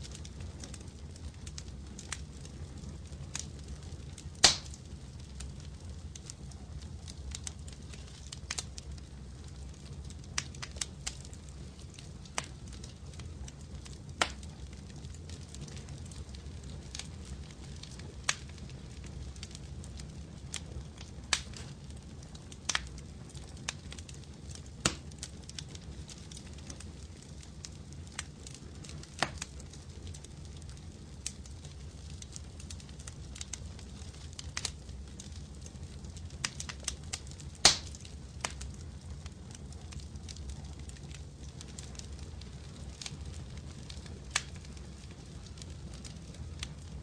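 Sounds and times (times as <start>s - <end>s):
fireplace fire crackling: 0.0s - 47.0s.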